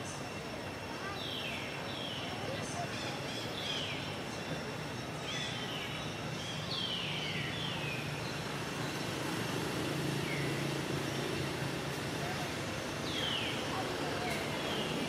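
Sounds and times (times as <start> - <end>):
outdoor ambience hiss: 0.0 - 15.0.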